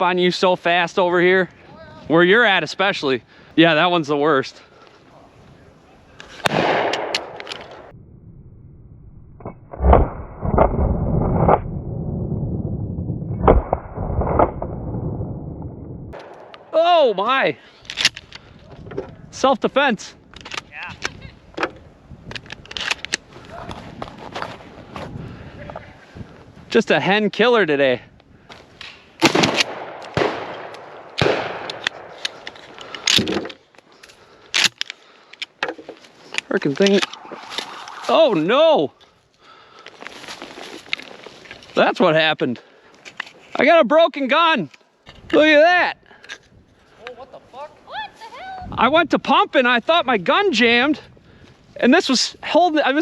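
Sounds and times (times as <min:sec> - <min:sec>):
faint sharp bangs: 0:06.3 - 0:07.9, 0:28.8 - 0:32.6
shotgun shots: 0:06.4 - 0:07.4, 0:29.2 - 0:32.2.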